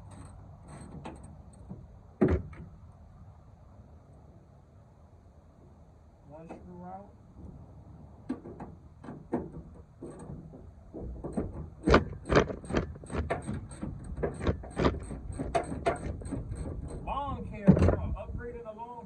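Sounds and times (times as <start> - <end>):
wind rumbling on microphone: 9.5 - 18.7.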